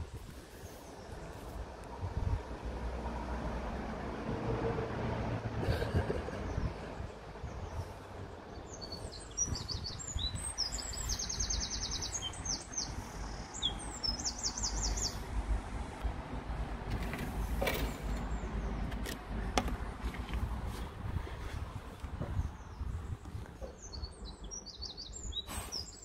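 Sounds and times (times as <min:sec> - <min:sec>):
low outdoor rumble: 0:00.0 - 0:24.7
small songbird chirping and singing: 0:08.5 - 0:15.3, 0:22.3 - 0:26.0.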